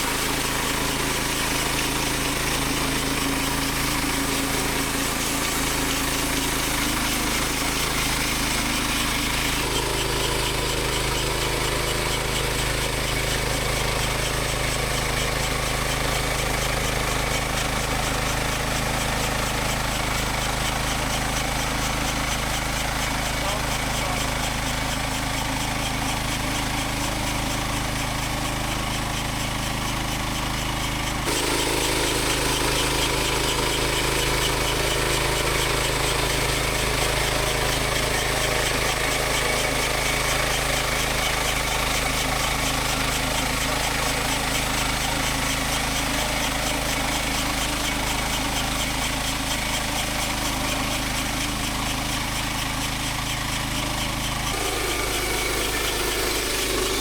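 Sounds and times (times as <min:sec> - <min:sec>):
sawmill engine running: 0:00.0 - 0:57.0.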